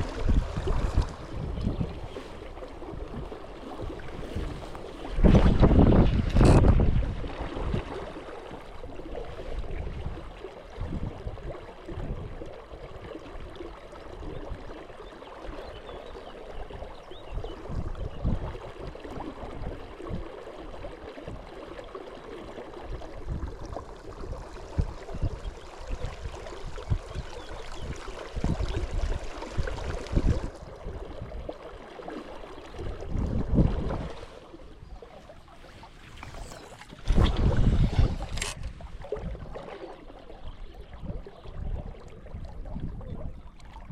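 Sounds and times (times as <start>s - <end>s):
wind buffeting microphone: 0.0s - 8.0s, 8.8s - 12.5s, 16.7s - 20.4s, 22.9s - 31.6s, 32.8s - 39.8s.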